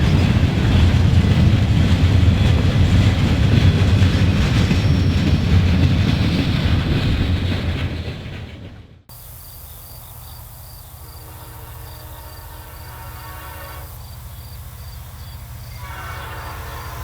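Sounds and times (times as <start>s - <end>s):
high pulsing insect chirp: 9.1s - 17.0s
distant locomotive horn: 11.0s - 17.0s.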